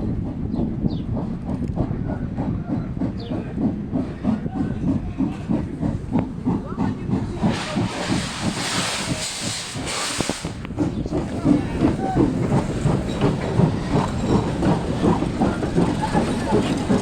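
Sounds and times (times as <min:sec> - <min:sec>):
steam locomotive chuffing: 0:00.0 - 0:17.0
loud steam hiss: 0:05.3 - 0:17.0.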